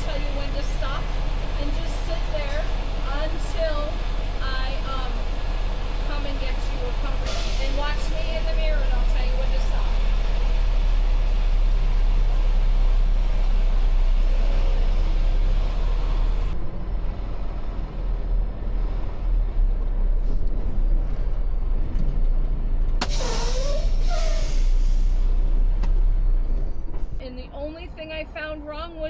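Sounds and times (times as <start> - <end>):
diesel truck engine rumbling: 0.0 - 29.0
loud burst of air hissing: 23.0 - 25.5.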